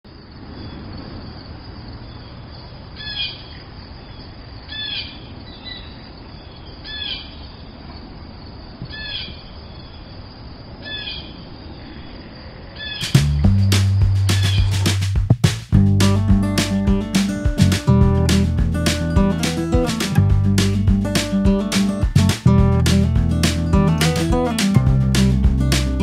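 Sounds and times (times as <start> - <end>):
low outdoor rumble: 13.2 - 26.0.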